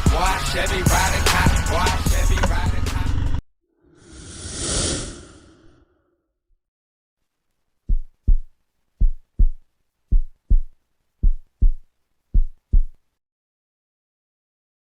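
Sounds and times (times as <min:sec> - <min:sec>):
heartbeat thumps: 0:07.9 - 0:13.0.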